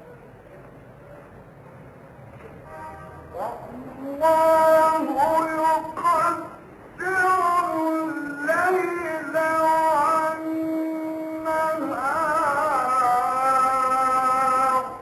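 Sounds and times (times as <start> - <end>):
man chanting recitation: 3.3 - 15.0.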